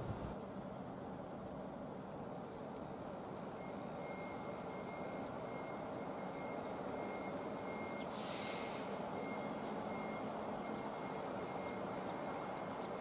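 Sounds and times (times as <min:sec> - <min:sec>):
train rolling rumble: 0:00.0 - 0:13.0
air hiss: 0:08.1 - 0:08.8.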